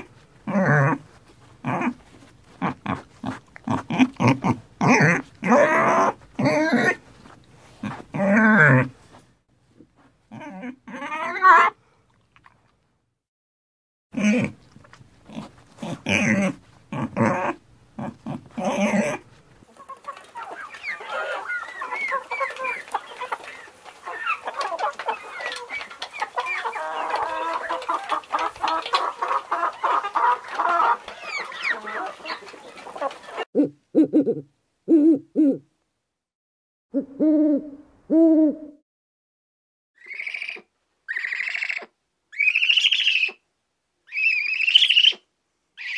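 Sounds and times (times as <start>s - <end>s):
pig grunting: 0.0s - 1.0s, 1.6s - 2.0s, 2.6s - 7.0s, 7.8s - 8.9s, 10.3s - 11.8s, 14.2s - 14.6s, 15.2s - 19.2s
chickens clucking: 19.7s - 33.5s
owl hooting: 40.0s - 43.4s, 44.1s - 45.2s.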